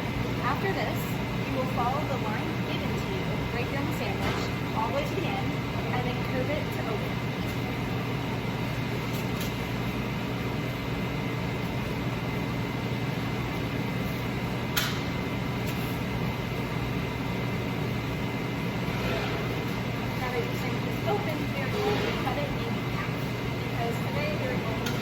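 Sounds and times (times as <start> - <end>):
machine hum and hiss: 0.0 - 25.0.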